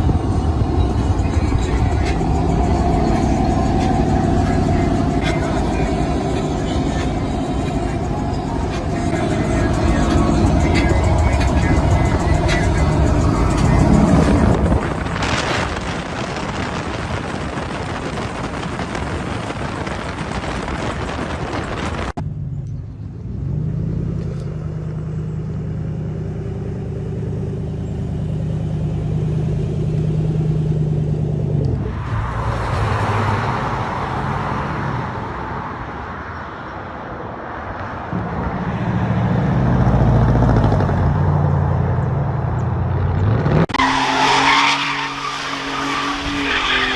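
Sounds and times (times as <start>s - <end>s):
engine idling low: 0.0s - 18.9s
loud truck exhausts: 0.0s - 21.0s.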